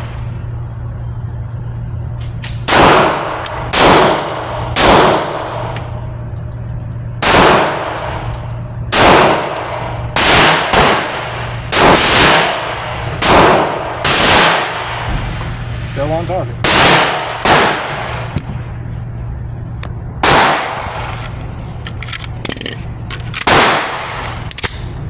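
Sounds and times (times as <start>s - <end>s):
pistol shots with echo: 2.7s - 5.7s, 7.2s - 8.3s, 8.9s - 15.0s, 16.6s - 18.3s, 20.2s - 21.0s, 23.3s - 25.0s.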